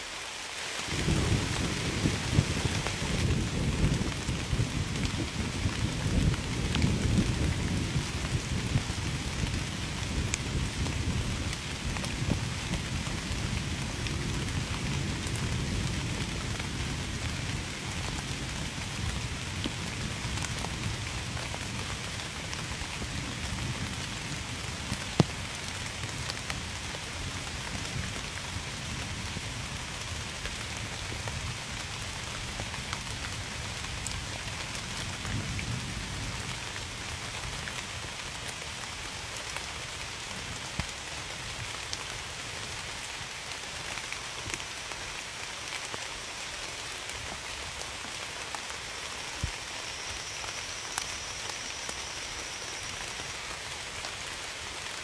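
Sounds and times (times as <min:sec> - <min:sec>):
heavy rain falling: 0:00.0 - 0:55.0
thunder rumble: 0:00.9 - 0:09.2.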